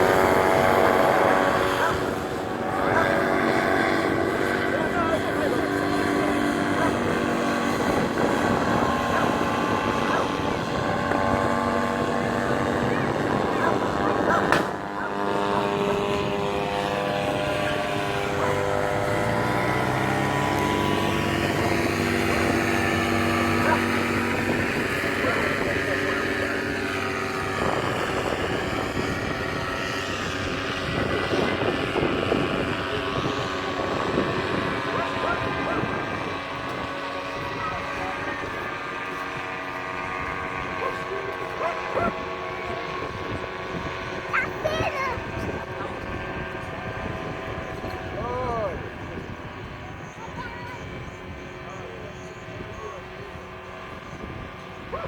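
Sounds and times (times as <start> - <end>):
engine drone: 0.0 - 55.0
faint voices: 0.0 - 55.0
motor running steadily: 0.0 - 55.0
rushing wind: 0.0 - 55.0.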